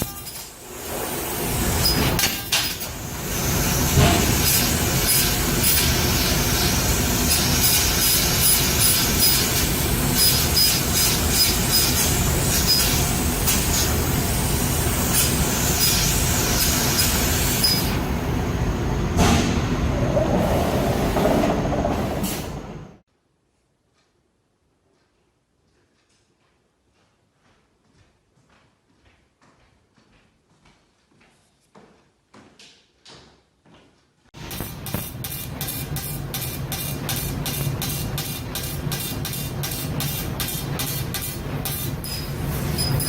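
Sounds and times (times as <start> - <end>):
laser cutter machine noise: 0.0 - 21.2.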